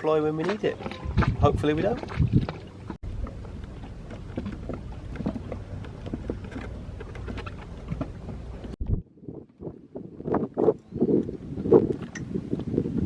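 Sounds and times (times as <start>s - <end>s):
light knocks and rustles of ropes: 0.0s - 8.8s
wind rumble on microphone: 0.0s - 13.0s.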